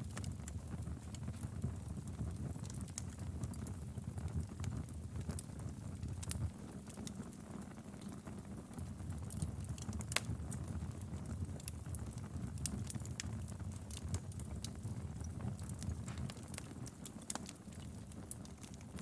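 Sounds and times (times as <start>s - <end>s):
low rumble of flames: 0.0s - 19.0s
wood fire crackling: 0.0s - 19.0s
sharp pops and snaps: 15.6s - 19.0s.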